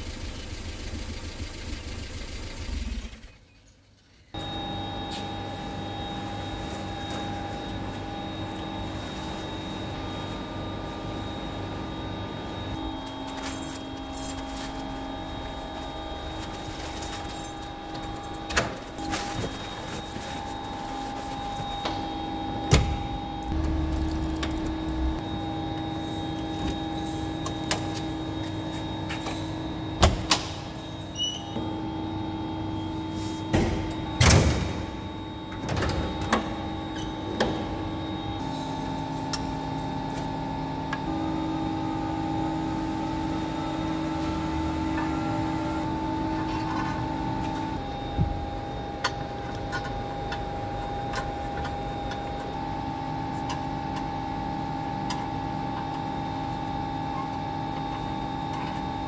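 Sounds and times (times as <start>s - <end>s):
car engine running: 0.0s - 3.4s, 23.2s - 30.9s.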